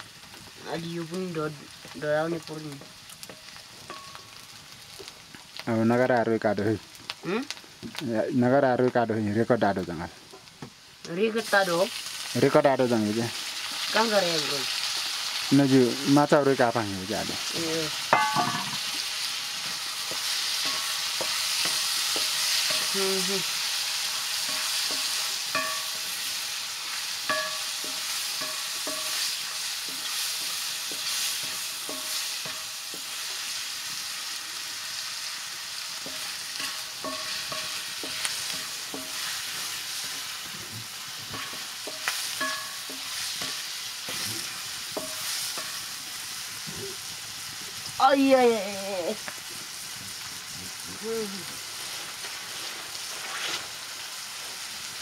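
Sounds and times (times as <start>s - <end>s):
mushrooms sizzling in a wok: 0.0s - 55.0s
wooden spatula scraping a pan: 51.7s - 53.8s.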